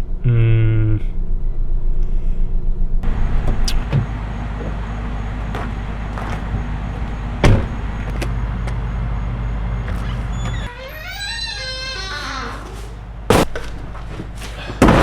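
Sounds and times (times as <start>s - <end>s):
car road and engine rumble: 3.0s - 10.7s.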